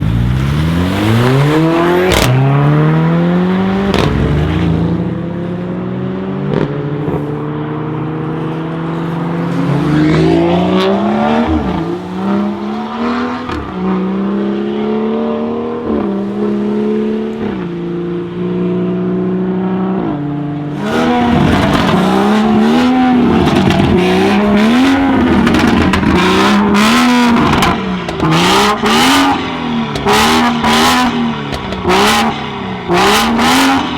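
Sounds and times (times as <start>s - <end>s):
car engine accelerating through gears: 0.0s - 33.9s
exhaust cracks: 20.8s - 28.4s.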